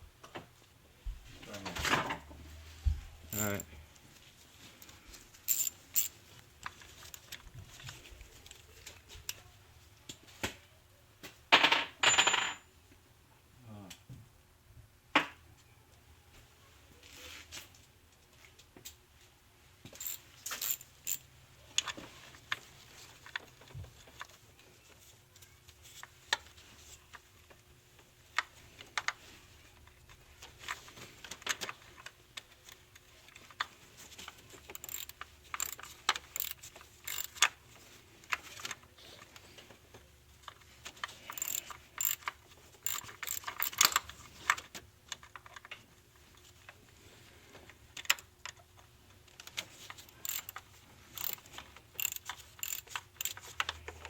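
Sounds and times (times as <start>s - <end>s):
hand ratchet clicking: 5.5s - 6.1s, 20.0s - 21.2s, 34.6s - 37.5s, 41.3s - 44.1s, 50.0s - 53.8s.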